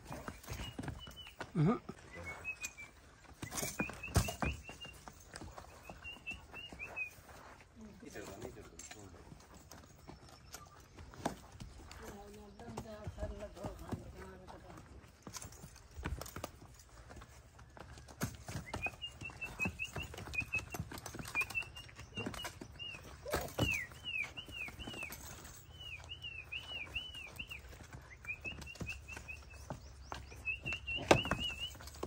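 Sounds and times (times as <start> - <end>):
donkey hooves on dry dirt: 0.0 - 32.0
small bird chirping: 5.6 - 7.5, 18.6 - 32.0.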